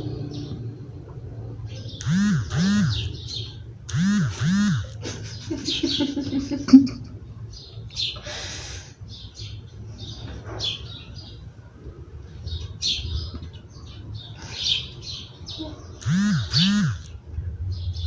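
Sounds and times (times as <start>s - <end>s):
low steady hum: 0.0s - 10.1s
small bird chirping: 1.7s - 6.6s, 12.5s - 17.2s.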